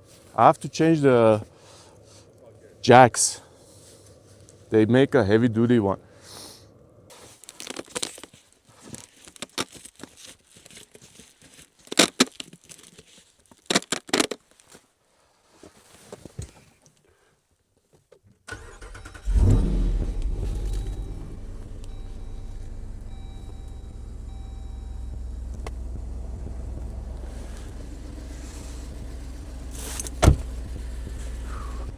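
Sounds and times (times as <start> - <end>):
car engine starting and idling: 18.5 - 31.9
clunks and rattles: 19.3 - 31.9.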